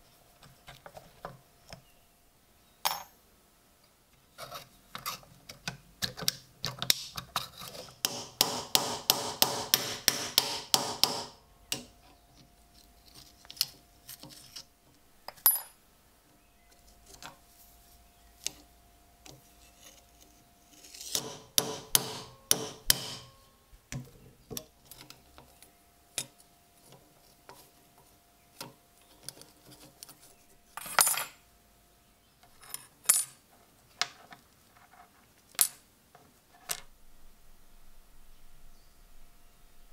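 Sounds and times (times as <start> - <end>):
small hammer tapping on metal: 8.0 - 11.9, 21.1 - 24.7.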